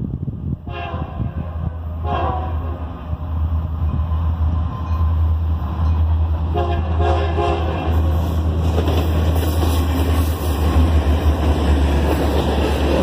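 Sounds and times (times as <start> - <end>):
diesel locomotive rumble: 0.0 - 13.0
locomotive air horn blasts: 0.6 - 3.0, 6.5 - 8.2.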